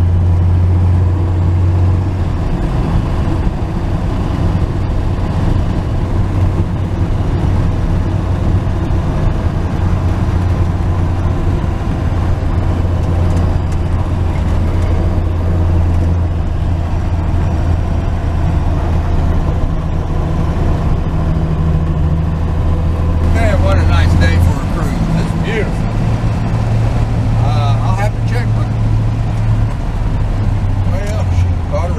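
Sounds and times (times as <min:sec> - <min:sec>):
road noise: 0:00.0 - 0:31.9
truck engine cruising: 0:00.0 - 0:31.9.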